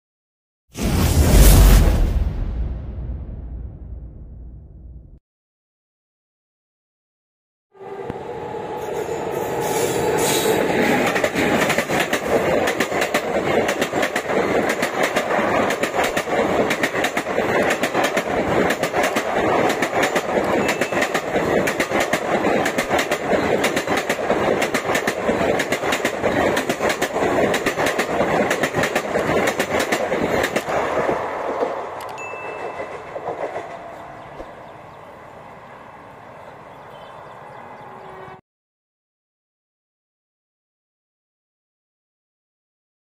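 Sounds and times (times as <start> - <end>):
train wheels rushing on rails: 8.1 - 38.4
wheels clicking over rail joints: 10.9 - 35.1.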